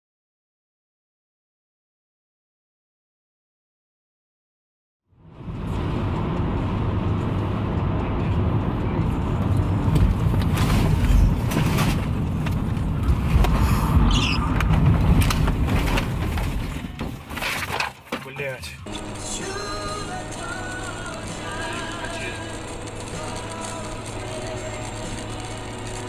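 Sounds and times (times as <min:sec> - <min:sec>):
vehicle engine and road rumble: 0:05.1 - 0:26.0
short rising squeak: 0:13.8 - 0:14.6.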